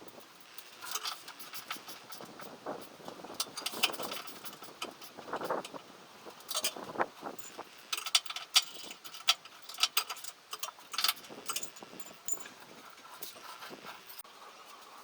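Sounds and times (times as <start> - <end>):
metallic clinks of tools: 7.4 - 14.2.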